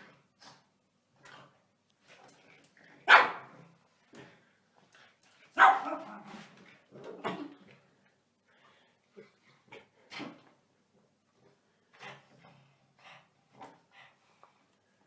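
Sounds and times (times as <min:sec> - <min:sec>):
dog barking: 0:03.1 - 0:03.5, 0:05.6 - 0:06.1.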